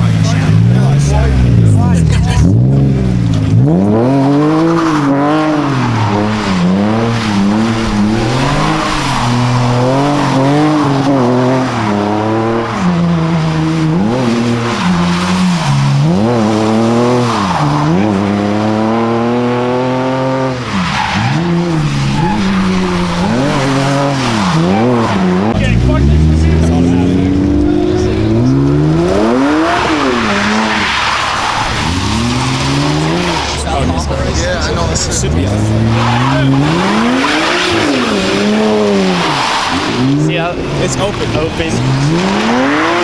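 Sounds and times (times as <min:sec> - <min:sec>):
car engine revving: 0:00.0 - 0:43.0
tyres squealing: 0:20.5 - 0:43.0.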